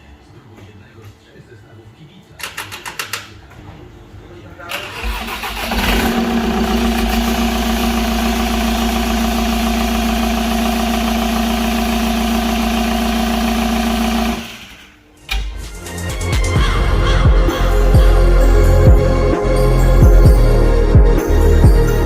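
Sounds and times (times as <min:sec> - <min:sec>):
diesel engine idling: 0:04.9 - 0:14.7.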